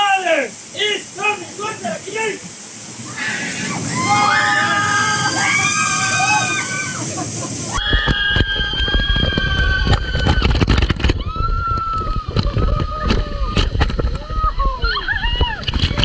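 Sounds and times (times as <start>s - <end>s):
rushing splashing water: 0.0s - 16.0s
people shrieking: 3.0s - 10.6s.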